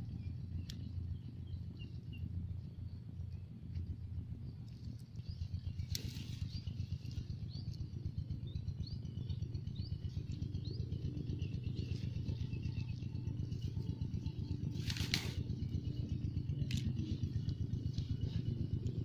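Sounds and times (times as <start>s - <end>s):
steady low rumble: 0.0s - 19.0s
bird chirping: 4.4s - 19.0s.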